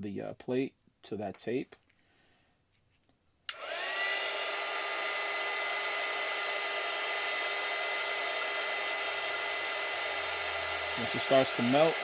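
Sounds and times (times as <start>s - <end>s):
heat gun blowing and whining: 3.5s - 12.0s.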